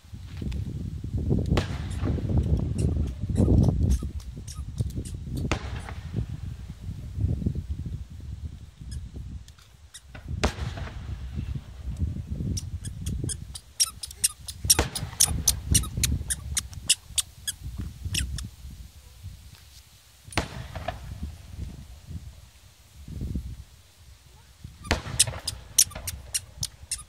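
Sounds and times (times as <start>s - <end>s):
fireworks shells bursting booms: 5.4s - 6.2s, 14.6s - 15.4s, 24.9s - 26.3s.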